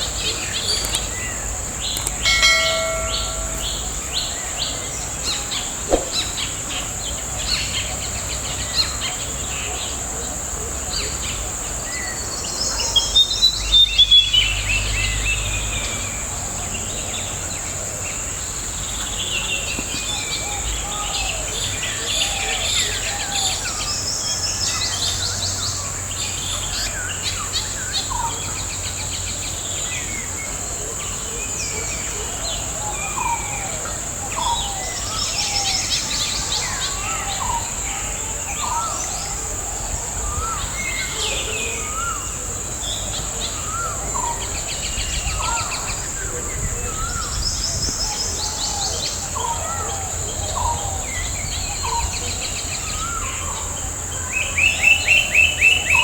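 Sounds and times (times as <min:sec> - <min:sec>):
birds calling: 0:00.0 - 0:09.3.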